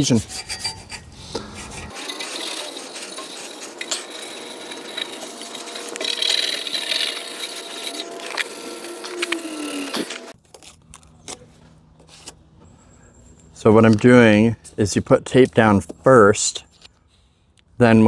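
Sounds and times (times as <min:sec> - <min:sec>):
hand rubbing a surface: 0:00.0 - 0:10.4.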